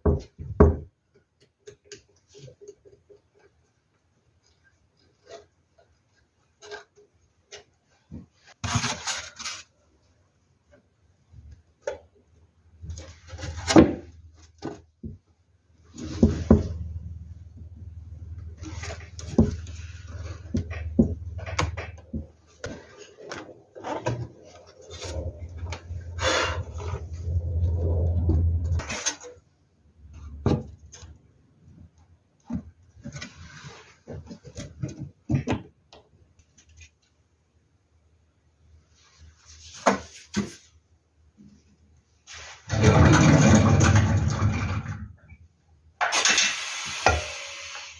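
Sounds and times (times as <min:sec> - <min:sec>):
low steady hum: 0:15.8 - 0:29.0.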